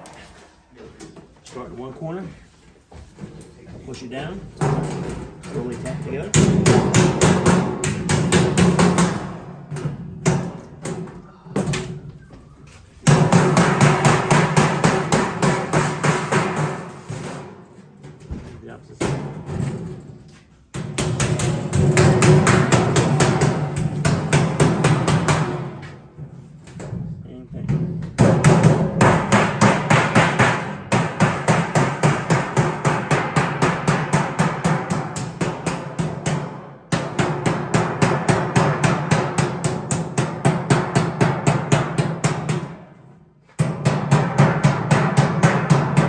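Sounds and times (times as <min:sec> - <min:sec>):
hammer tapping sheet metal: 0:04.6 - 0:11.8, 0:13.0 - 0:17.6, 0:20.7 - 0:26.0, 0:27.7 - 0:43.0, 0:43.6 - 0:46.0.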